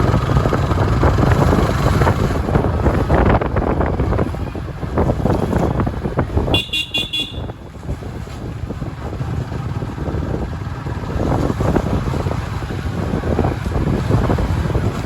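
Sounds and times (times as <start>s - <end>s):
road traffic: 0.0s - 15.0s
high-pitched vehicle horn beeps: 6.5s - 7.7s.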